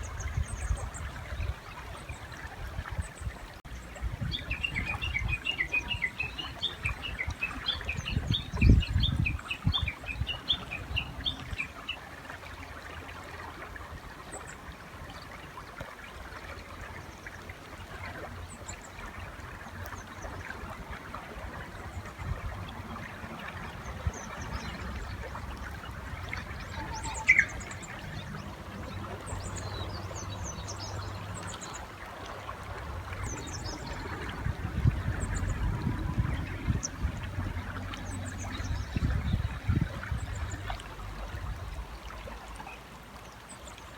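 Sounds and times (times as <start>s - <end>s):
bird chirping: 26.6s - 28.4s.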